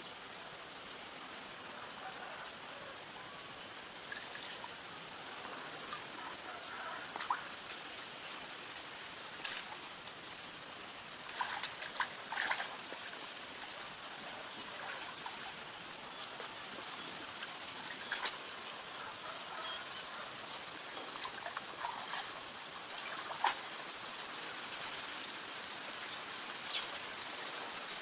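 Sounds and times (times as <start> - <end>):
steady hiss: 0.0 - 28.0
water trickling and splashing: 4.0 - 5.0, 9.2 - 24.0.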